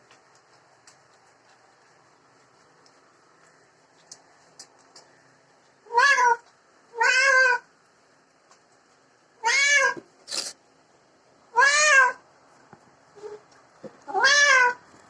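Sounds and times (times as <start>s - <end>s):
cat meowing loudly: 5.9s - 7.7s, 9.4s - 10.0s, 11.5s - 12.2s, 14.0s - 14.8s.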